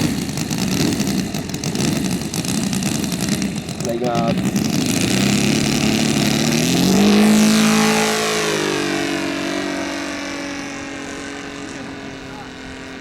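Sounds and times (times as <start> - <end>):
model plane engine at full power: 0.0 - 13.0.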